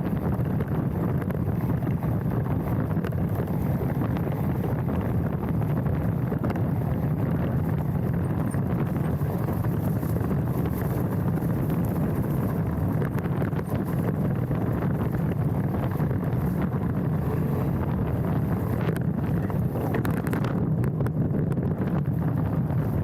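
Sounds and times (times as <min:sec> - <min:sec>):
tyre rumble: 0:00.0 - 0:23.0
wind on microphone: 0:00.0 - 0:23.0.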